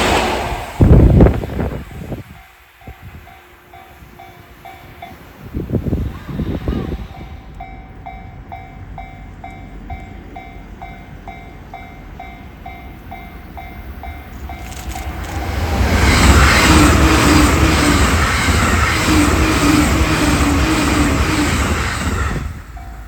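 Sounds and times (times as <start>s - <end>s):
electric train passing: 0.0s - 23.0s
train motors whining: 14.0s - 23.0s.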